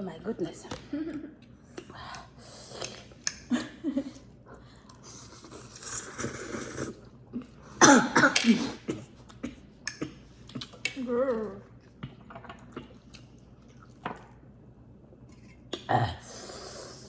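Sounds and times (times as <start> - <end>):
person coughing: 7.8 - 9.6.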